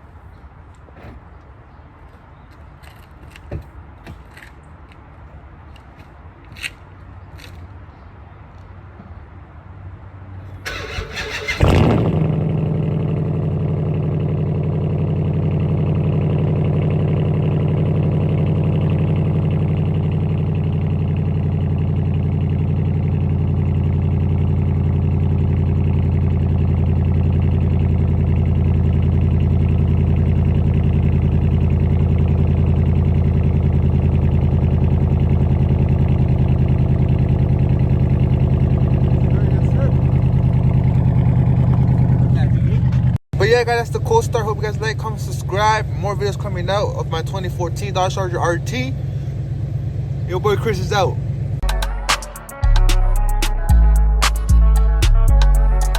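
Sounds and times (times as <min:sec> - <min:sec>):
car engine starting and idling: 0:10.5 - 0:55.9
starter motor cranking: 0:10.6 - 0:12.1.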